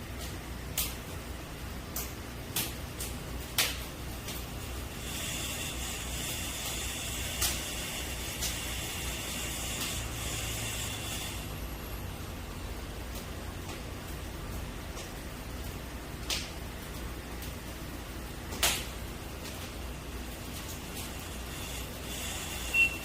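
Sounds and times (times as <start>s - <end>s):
low steady hum: 0.0s - 23.0s
steady high hiss: 0.0s - 23.0s
sharp clicks and knocks: 18.5s - 19.8s.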